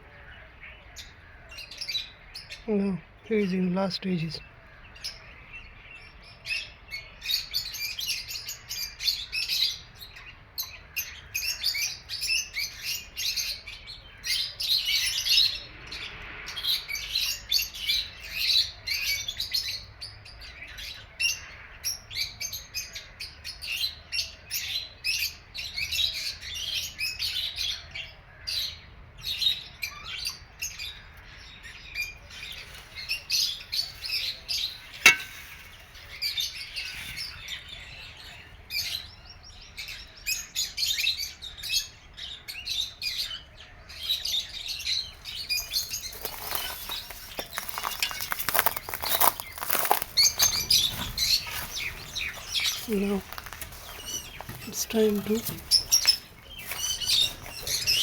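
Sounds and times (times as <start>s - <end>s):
lovebirds chirping: 1.0s - 16.1s, 30.4s - 41.4s, 44.1s - 58.0s.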